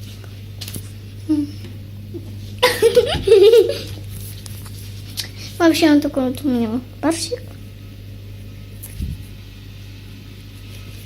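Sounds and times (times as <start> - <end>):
person laughing: 2.2 - 4.0.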